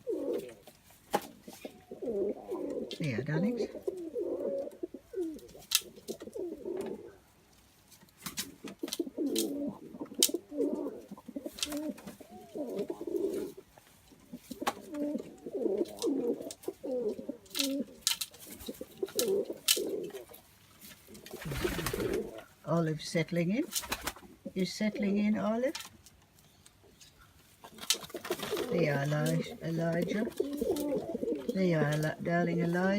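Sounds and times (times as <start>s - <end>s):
doves cooing: 0.0s - 7.3s, 8.5s - 22.6s, 27.2s - 32.9s.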